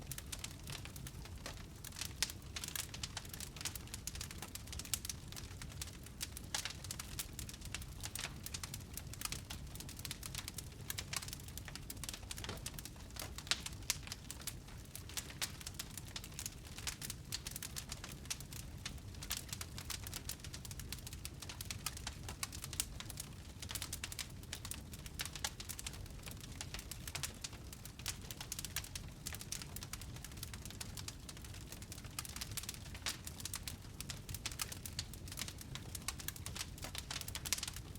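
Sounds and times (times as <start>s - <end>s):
wood fire crackling: 0.0s - 37.9s.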